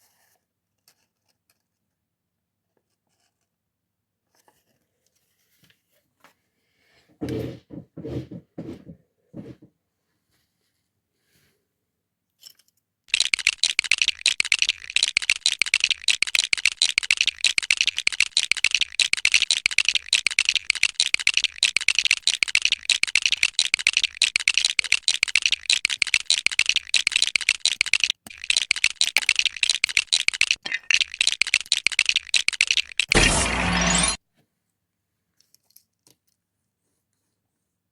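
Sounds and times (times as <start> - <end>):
plastic toy bricks rattling: 13.1 - 34.2.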